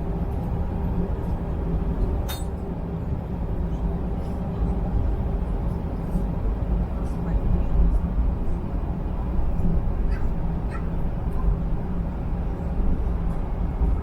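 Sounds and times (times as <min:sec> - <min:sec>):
airplane cabin rumble: 0:00.0 - 0:14.0
sharp clink: 0:02.3 - 0:02.5.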